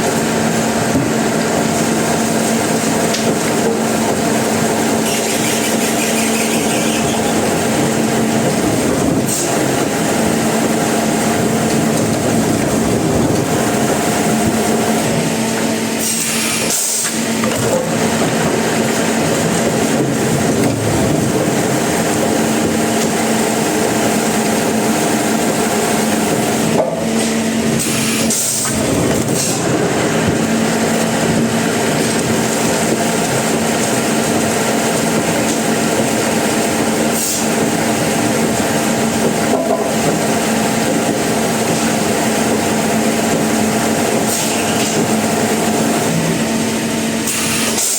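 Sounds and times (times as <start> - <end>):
motor hum: 0.0 - 15.8
sawmill saw cutting wood: 4.7 - 9.5.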